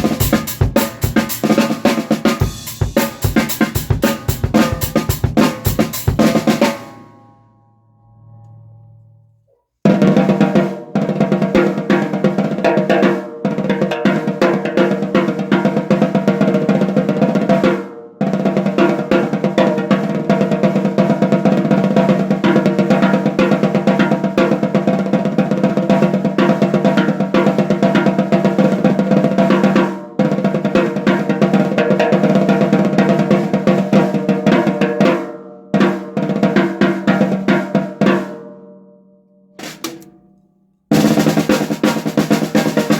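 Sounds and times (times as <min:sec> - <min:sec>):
snare drum rolls: 0:00.0 - 0:07.0, 0:39.6 - 0:40.2, 0:40.9 - 0:42.9.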